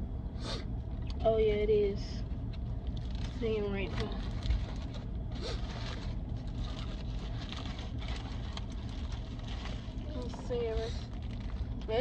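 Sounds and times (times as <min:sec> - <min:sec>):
car engine rumble: 0:00.0 - 0:12.0
soft rustling and scraping: 0:02.9 - 0:12.0.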